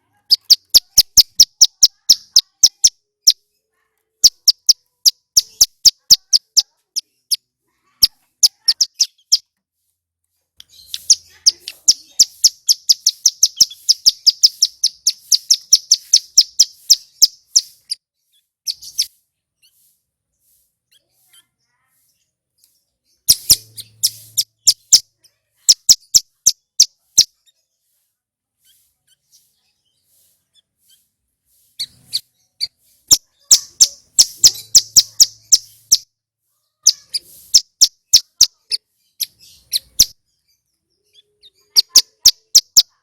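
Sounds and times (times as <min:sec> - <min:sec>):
bird singing sharp clicking notes: 0:10.6 - 0:18.0.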